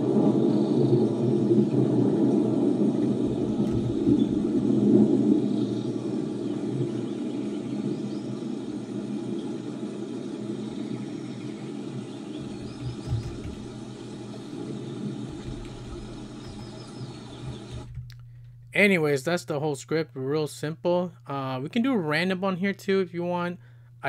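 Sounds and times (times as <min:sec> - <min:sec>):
rain noise with low rumble: 0:00.0 - 0:18.8.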